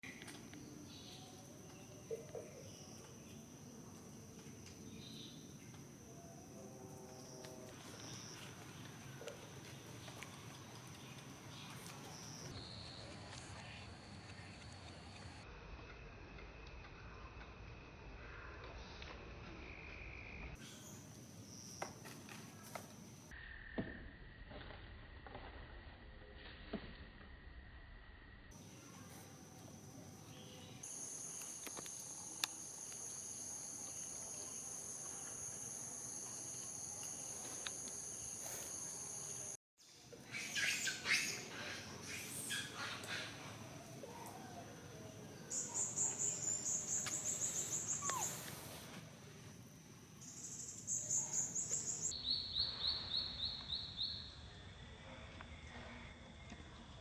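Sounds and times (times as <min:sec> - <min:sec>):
high-pitched insect chorus: 0:29.8 - 0:39.6, 0:45.0 - 0:55.8.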